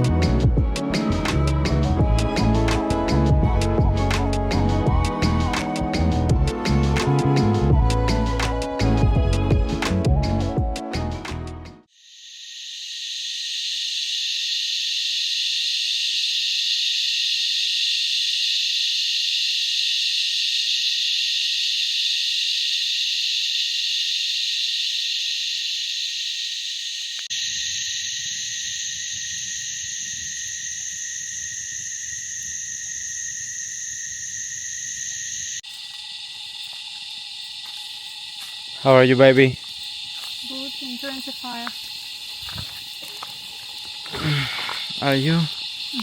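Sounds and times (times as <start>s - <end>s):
insects calling: 0.0s - 11.1s, 11.8s - 46.0s
frogs calling: 11.9s - 46.0s.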